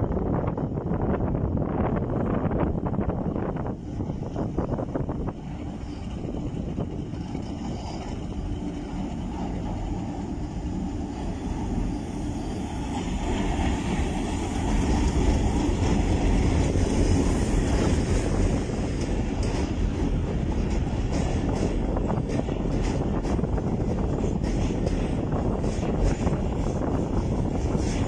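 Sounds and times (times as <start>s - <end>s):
diesel locomotive rumble: 0.0s - 28.0s
train wheel clicks: 12.9s - 28.0s.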